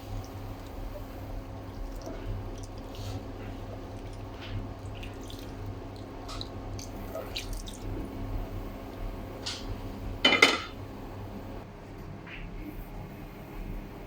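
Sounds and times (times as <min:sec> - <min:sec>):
cookware clinking and scraping: 0:10.2 - 0:10.8.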